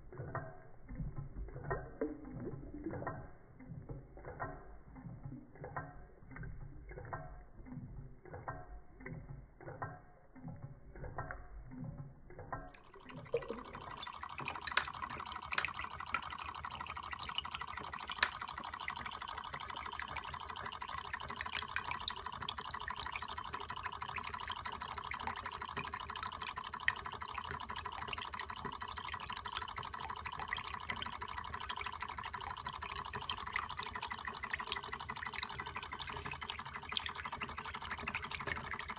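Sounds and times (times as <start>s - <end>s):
water splashing and dripping: 12.4s - 38.9s
fast mechanical rattle: 12.7s - 38.9s.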